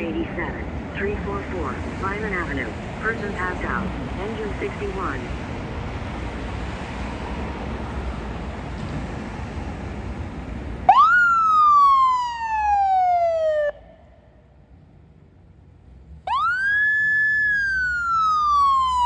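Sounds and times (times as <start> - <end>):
steady rumbling noise: 0.0 - 10.9
electronic siren wail: 10.9 - 14.0, 16.3 - 19.0.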